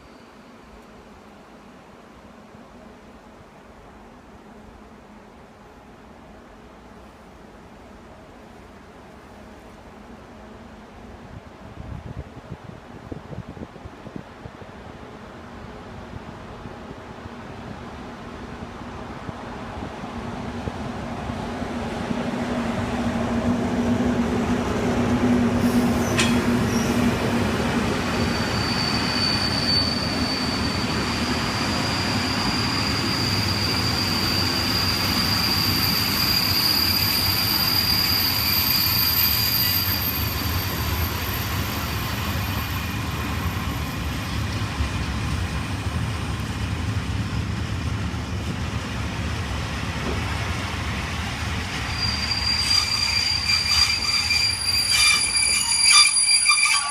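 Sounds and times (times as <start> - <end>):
train rumbling past: 0.0 - 56.9
high-pitched wheel squeal: 28.0 - 44.3, 51.8 - 56.9.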